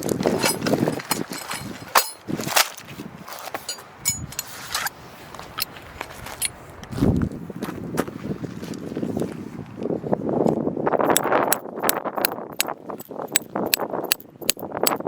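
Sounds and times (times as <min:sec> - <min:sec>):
small metal parts clinking: 0:00.1 - 0:02.7, 0:03.3 - 0:04.6, 0:11.1 - 0:15.0
sharp clicks and knocks: 0:11.1 - 0:15.0.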